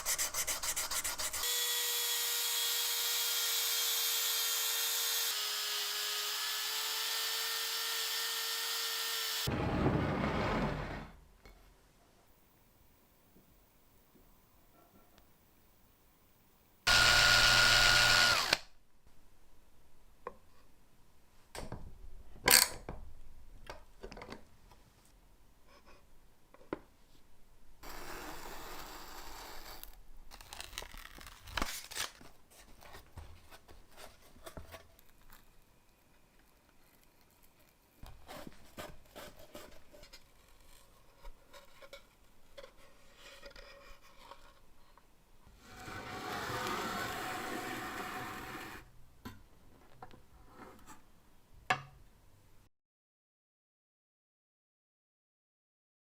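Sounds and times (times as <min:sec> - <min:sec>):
small power tool whining: 0:01.4 - 0:09.5, 0:16.9 - 0:18.6.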